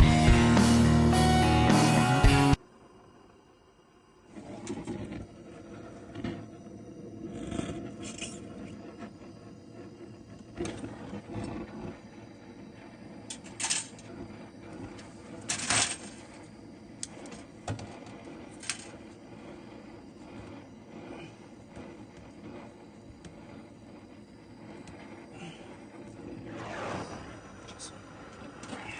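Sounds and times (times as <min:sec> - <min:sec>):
steady low hum: 0:02.6 - 0:28.9.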